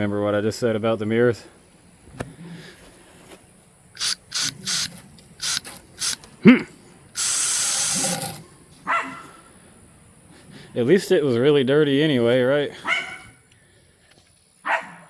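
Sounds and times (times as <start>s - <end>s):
aerosol spray hissing: 4.0s - 6.2s, 7.2s - 8.4s.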